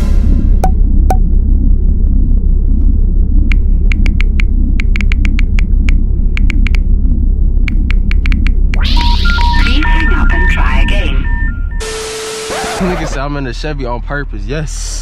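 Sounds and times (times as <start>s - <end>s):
sharp clicks: 3.5s - 6.9s, 7.6s - 8.8s.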